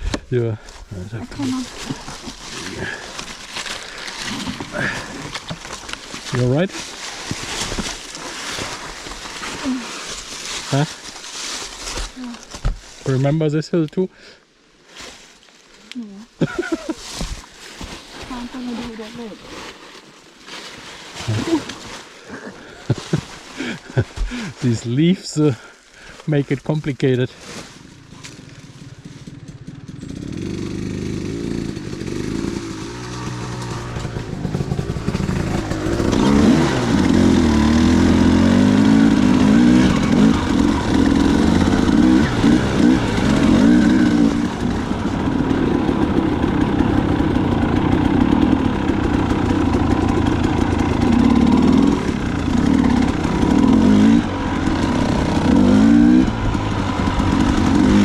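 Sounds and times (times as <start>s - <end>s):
dirt bike engine revving: 1.0s - 10.0s, 16.4s - 17.0s, 28.1s - 58.0s.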